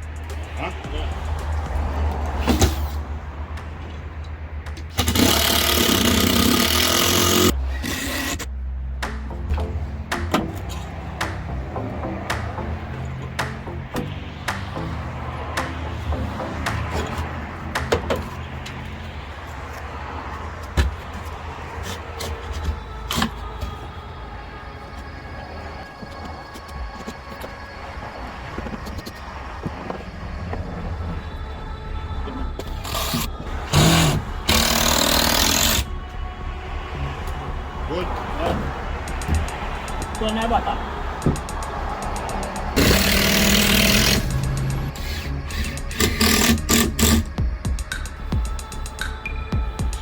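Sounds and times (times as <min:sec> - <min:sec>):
low rumble: 0:00.0 - 0:21.8, 0:27.7 - 0:48.6
motor running loudly: 0:04.9 - 0:08.4, 0:32.8 - 0:35.9, 0:41.1 - 0:47.6.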